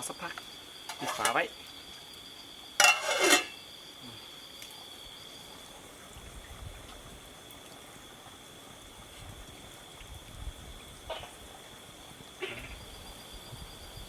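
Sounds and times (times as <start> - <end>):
insect high-pitched trill: 0.0 - 7.4, 8.9 - 14.0
low wind rumble: 6.0 - 7.3, 9.2 - 11.2.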